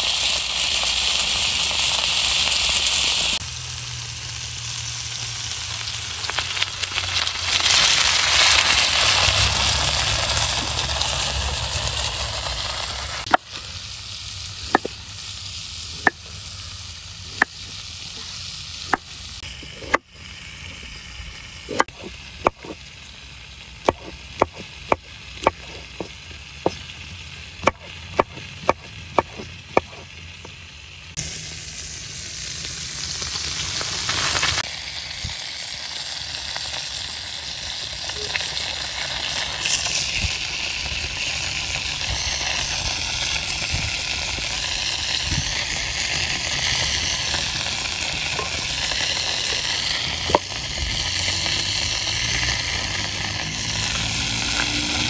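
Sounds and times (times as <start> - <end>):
meat sizzling in a pan: 0.0 - 55.0
knife chopping on wooden board: 14.7 - 14.9, 16.0 - 16.2, 19.7 - 20.1, 21.7 - 22.8, 23.9 - 26.8, 27.6 - 30.0.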